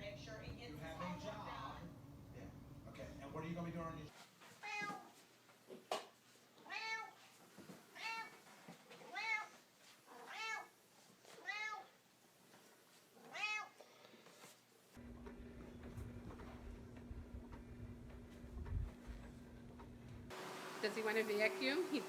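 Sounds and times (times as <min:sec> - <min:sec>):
cat meowing: 0:04.6 - 0:05.2, 0:06.6 - 0:07.2, 0:07.9 - 0:08.4, 0:09.0 - 0:10.7, 0:11.4 - 0:12.0, 0:13.2 - 0:13.9.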